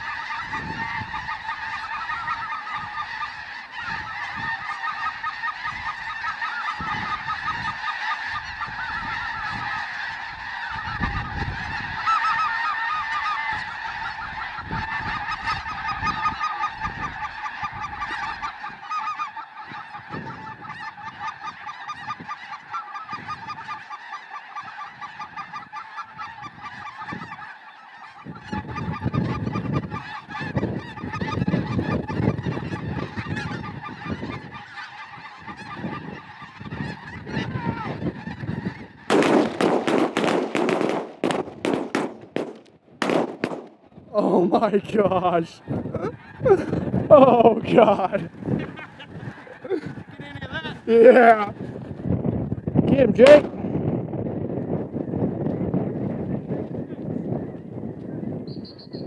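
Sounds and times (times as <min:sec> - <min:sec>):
geese honking and yelping: 0:00.0 - 0:59.0.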